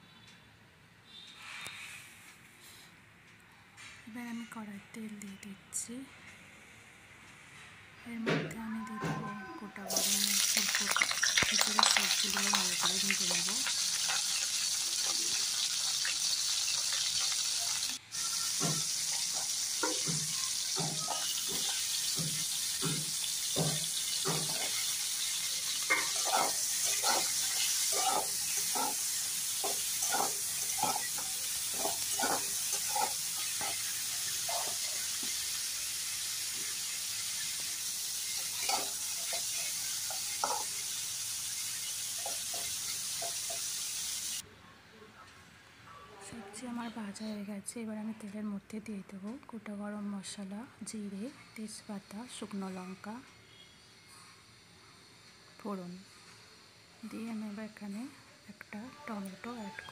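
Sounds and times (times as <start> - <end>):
vegetables sizzling in hot oil: 9.9 - 44.4, 55.2 - 58.1
spatula scraping and knocking pan: 18.4 - 35.4, 38.3 - 40.9.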